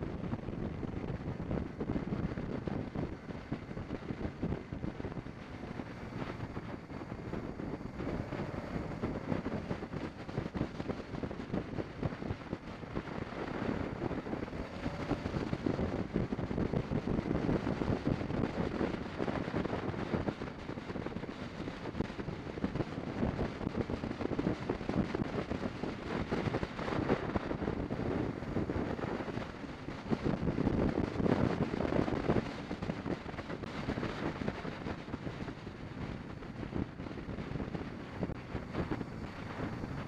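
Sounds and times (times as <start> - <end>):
motorcycle engine: 0.0 - 40.0
road noise: 0.0 - 40.0
wind buffeting microphone: 0.0 - 40.0.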